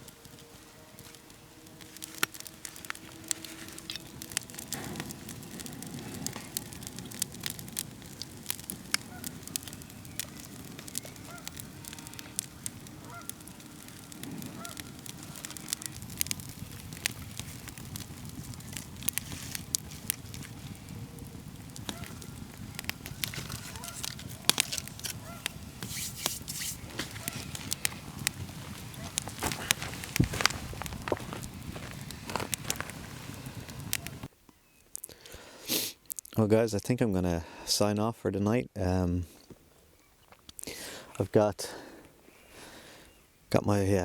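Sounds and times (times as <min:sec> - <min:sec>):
geese honking: 0:00.0 - 0:16.4, 0:20.1 - 0:34.3
campfire crackling and popping: 0:00.0 - 0:37.8, 0:38.9 - 0:43.7.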